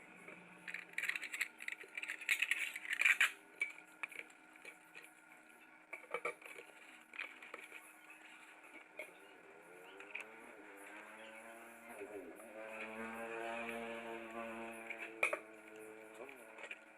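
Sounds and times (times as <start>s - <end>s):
dishes and cutlery clinking: 15.1s - 15.5s.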